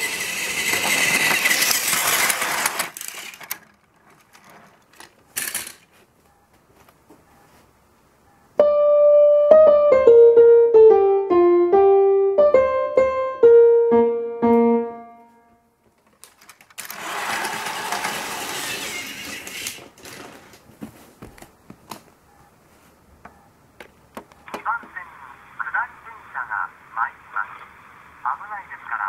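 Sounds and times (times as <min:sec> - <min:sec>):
electronic organ melody: 0:08.6 - 0:15.8.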